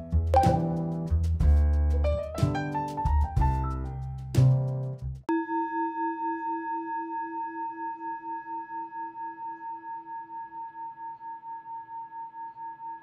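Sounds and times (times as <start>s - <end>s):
singing bowl ringing: 5.3s - 13.0s.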